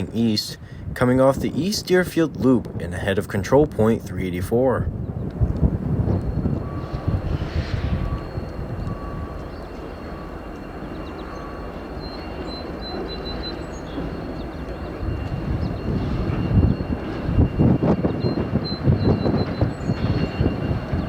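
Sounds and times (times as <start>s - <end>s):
diesel locomotive rumbling: 0.0s - 21.0s.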